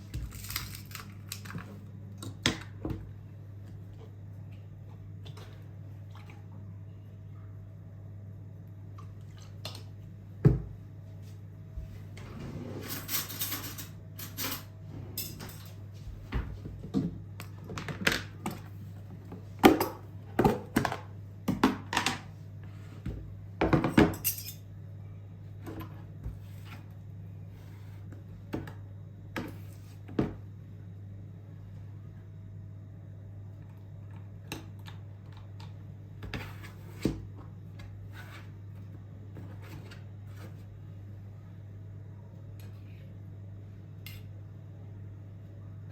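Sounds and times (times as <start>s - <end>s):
dishes and cutlery clinking: 23.7s - 24.6s.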